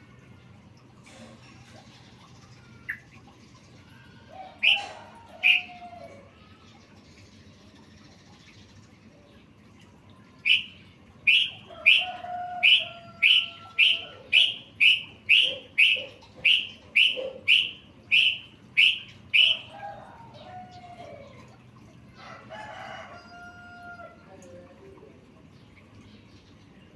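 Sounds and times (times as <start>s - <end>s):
bird chirping call: 1.8s - 6.0s, 10.4s - 19.8s.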